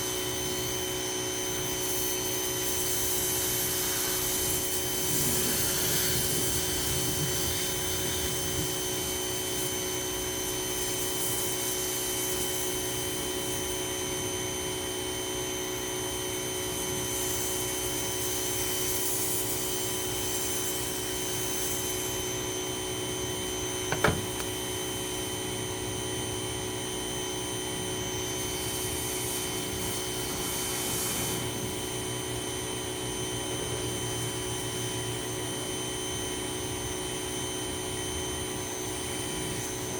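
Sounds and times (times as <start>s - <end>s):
pressure washer motor humming: 0.0s - 39.9s
water spray hissing: 2.8s - 9.2s, 28.5s - 32.0s.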